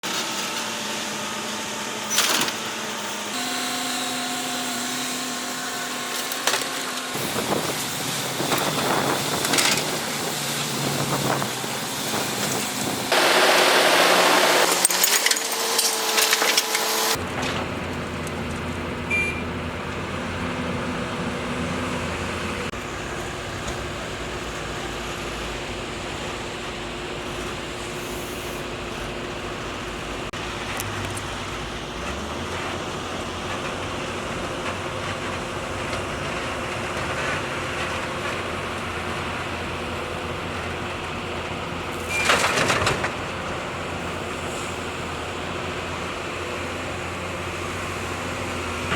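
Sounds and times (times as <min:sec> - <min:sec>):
construction machinery engine drone: 0:00.0 - 0:48.9.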